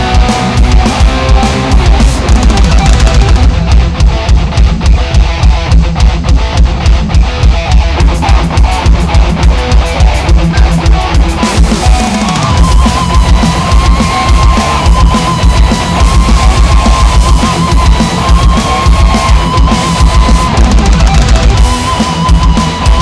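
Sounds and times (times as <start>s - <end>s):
heavy metal music: 0.0s - 23.0s.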